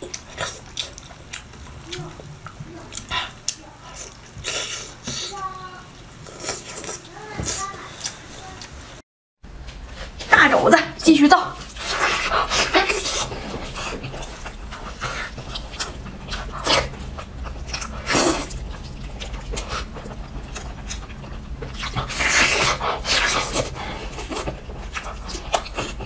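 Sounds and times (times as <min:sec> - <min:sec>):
person chewing and lip-smacking: 0:00.0 - 0:05.4, 0:11.7 - 0:26.0.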